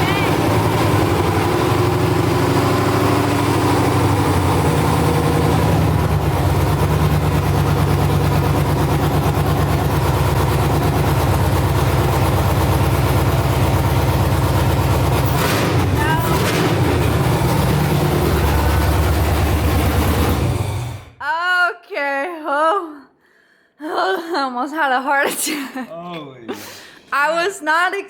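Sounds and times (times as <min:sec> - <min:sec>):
loud engine with choppy idle: 0:00.0 - 0:21.2.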